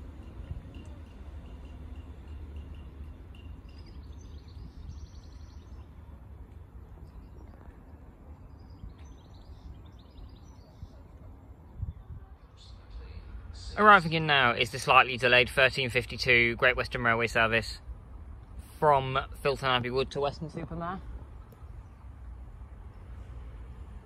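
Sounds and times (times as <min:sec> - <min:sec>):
small birds chirping: 0:00.7 - 0:13.8.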